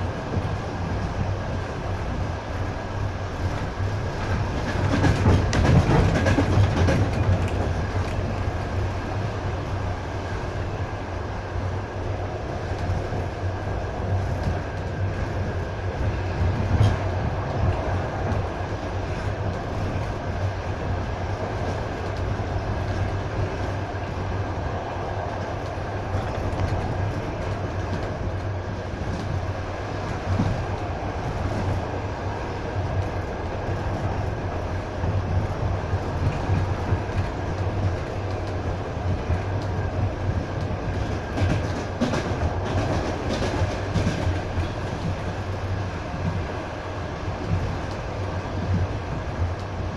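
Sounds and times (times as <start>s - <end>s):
train wheels rumbling: 0.0s - 49.9s.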